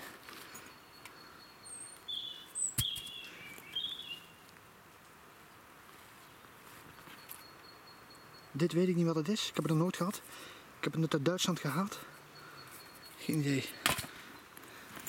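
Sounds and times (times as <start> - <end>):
bird chirps and warbling: 1.7 - 4.4.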